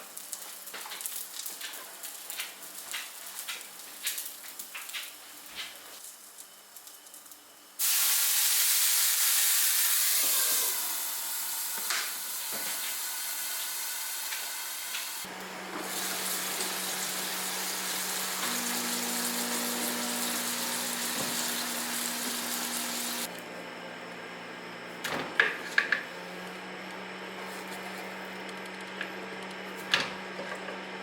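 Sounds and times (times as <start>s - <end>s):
patties sizzling in a pan: 0.1s - 23.3s.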